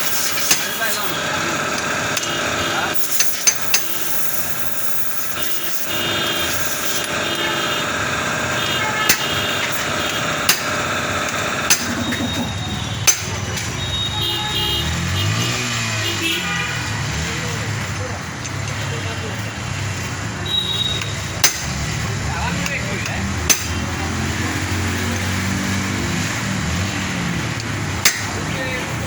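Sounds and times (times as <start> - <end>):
engine running: 0.0 - 29.0
sharp clicks or knocks: 9.1 - 13.8, 21.0 - 22.0, 23.0 - 24.0, 27.6 - 28.5.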